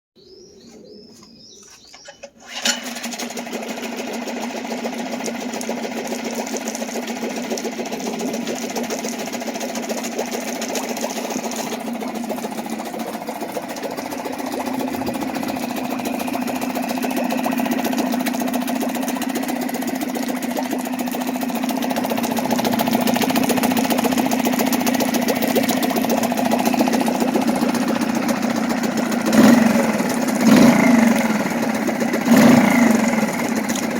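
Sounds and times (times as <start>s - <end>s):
outboard motor starting and running: 0.4s - 33.9s.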